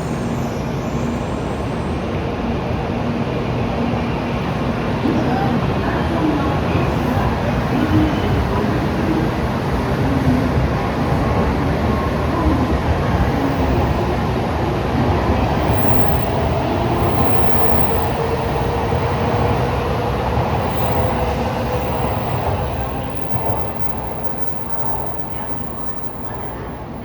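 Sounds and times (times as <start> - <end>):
train rumbling past: 0.0 - 27.0.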